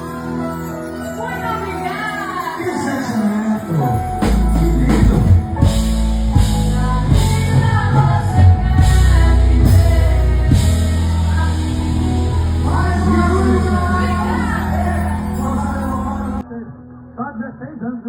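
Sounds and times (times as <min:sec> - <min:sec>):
person singing: 0:00.0 - 0:16.9
drums and bass: 0:04.2 - 0:16.4.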